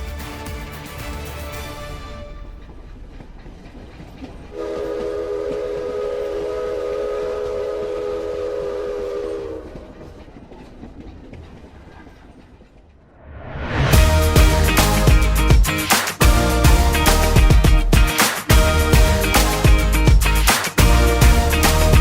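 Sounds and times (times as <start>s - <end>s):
train rumbling: 0.0s - 22.0s
multi-note train horn: 4.5s - 10.0s, 14.0s - 15.4s, 16.2s - 17.6s, 18.5s - 20.1s, 20.8s - 22.0s.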